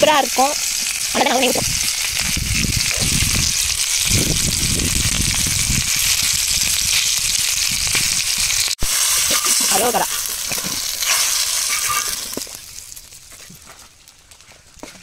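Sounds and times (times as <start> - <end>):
chicken sizzling in a pan: 0.0 - 13.2
low rumbles: 1.5 - 8.7.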